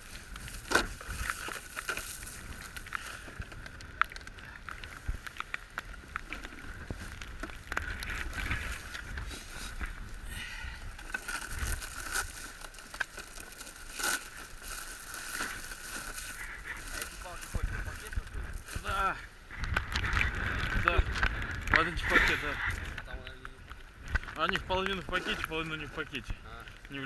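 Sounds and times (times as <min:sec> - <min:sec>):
wind rumble on microphone: 0:00.0 - 0:12.6, 0:15.4 - 0:26.9
bags rustling: 0:00.0 - 0:19.2.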